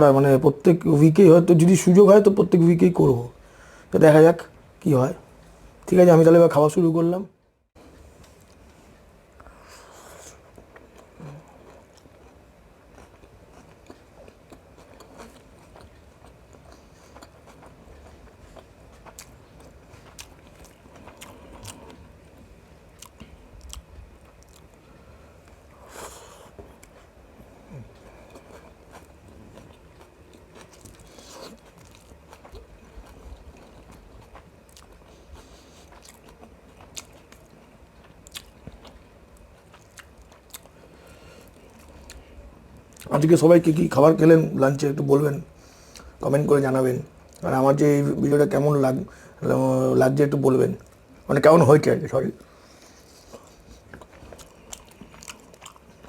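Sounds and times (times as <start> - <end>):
person chewing food: 9.4 - 43.1, 45.5 - 46.2, 52.4 - 56.0.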